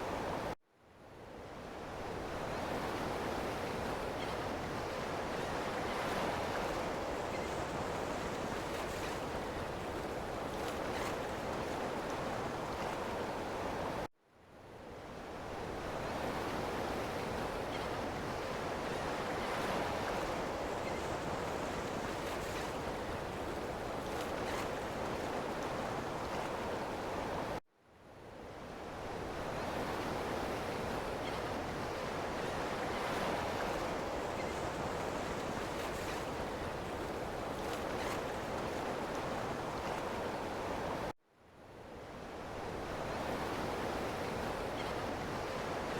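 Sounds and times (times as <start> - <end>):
ocean waves washing on shore: 15.3 - 27.6, 28.6 - 41.2, 41.9 - 45.9.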